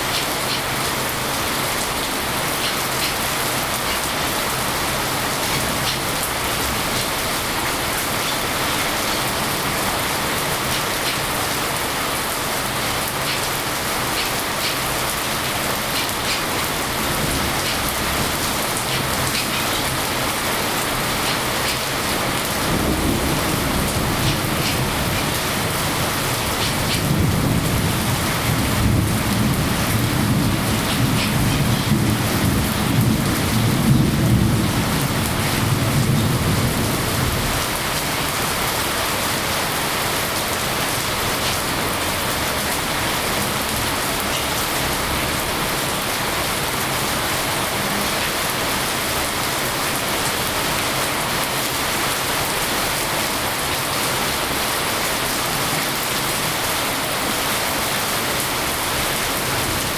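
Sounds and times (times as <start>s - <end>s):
steady rain: 0.0s - 59.9s
raindrop ticks: 2.6s - 4.2s, 10.5s - 11.3s, 13.1s - 20.0s, 20.9s - 21.9s, 24.0s - 25.4s, 30.5s - 32.2s
thunder rumbling: 15.4s - 50.1s.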